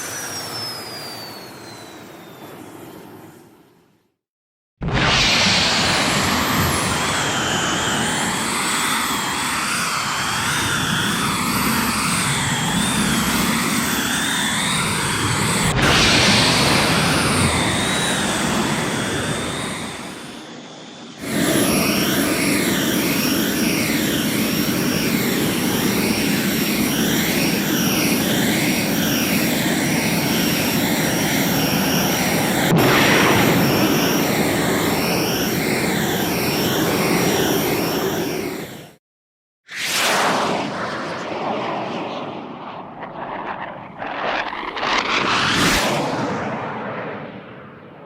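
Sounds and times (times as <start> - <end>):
thin high whine: 0.0 - 3.5
rocket thrust roar: 4.8 - 38.9, 39.7 - 48.0.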